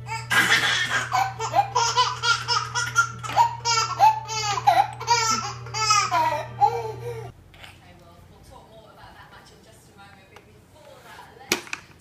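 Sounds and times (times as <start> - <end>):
baby laughing: 0.1 - 7.3.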